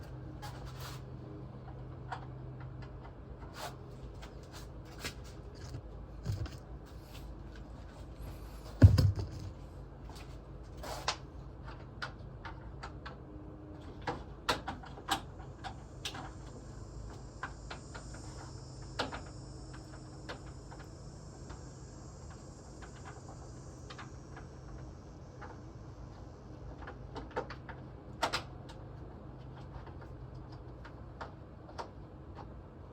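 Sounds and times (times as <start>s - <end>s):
low steady hum: 0.0s - 10.8s
tools clicking and knocking: 5.6s - 6.6s, 8.8s - 9.6s
heavy thump: 8.6s - 9.6s.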